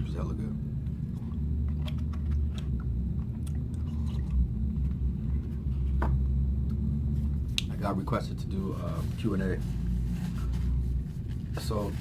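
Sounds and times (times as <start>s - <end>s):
steady low rumble: 0.0s - 12.0s
person chewing: 0.9s - 5.4s.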